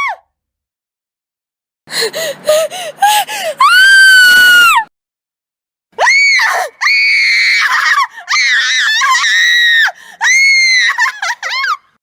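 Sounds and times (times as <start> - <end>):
girl screaming: 3.6 - 4.9, 6.0 - 11.8.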